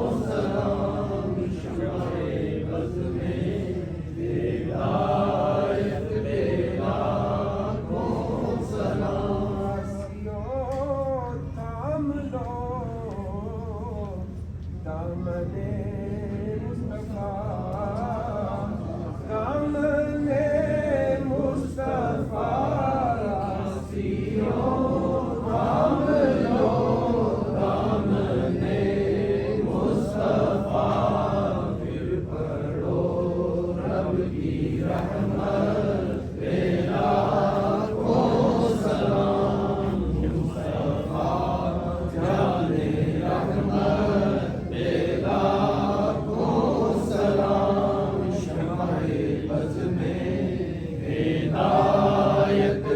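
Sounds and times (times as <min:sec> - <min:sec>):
men chanting together: 0:00.0 - 0:10.8, 0:14.9 - 0:52.9
steady low hum: 0:00.0 - 0:52.9.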